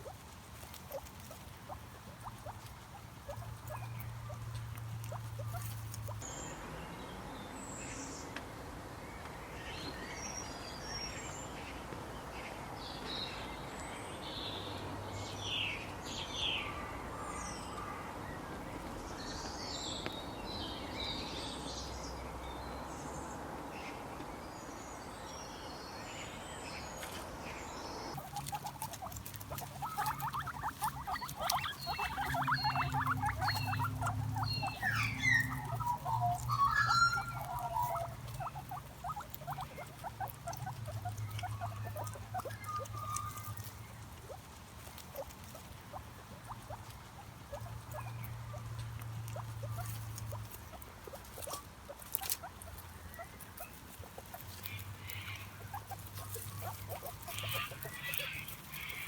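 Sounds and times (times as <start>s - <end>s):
guinea pig squeaking: 0.0s - 6.2s, 28.1s - 59.0s
birds chirping: 0.0s - 6.6s, 25.3s - 59.0s.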